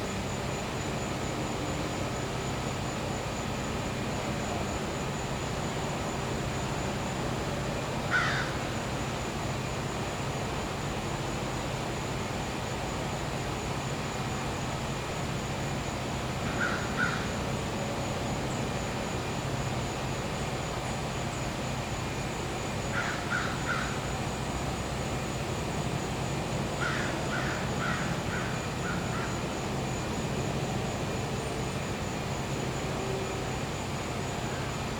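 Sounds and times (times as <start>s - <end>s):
high insect trill: 0.0s - 34.9s
generator humming: 11.6s - 34.9s.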